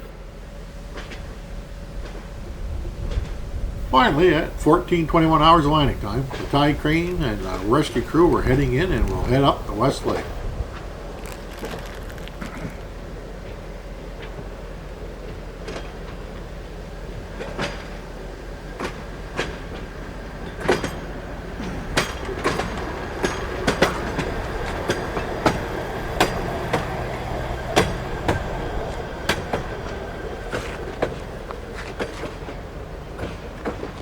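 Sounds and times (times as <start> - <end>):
low engine hum: 0.0 - 34.0
wheels clacking over rail joints: 0.0 - 34.0.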